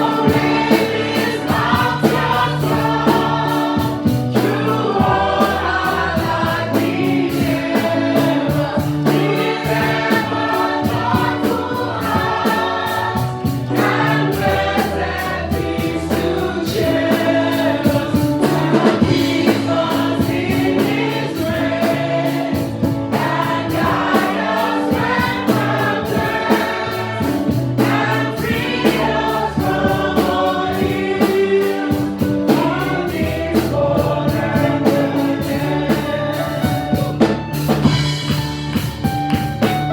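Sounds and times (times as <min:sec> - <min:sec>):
bass: 0:00.0 - 0:39.9
drum kit percussion: 0:00.0 - 0:39.9
gospel choir singing: 0:00.0 - 0:39.9.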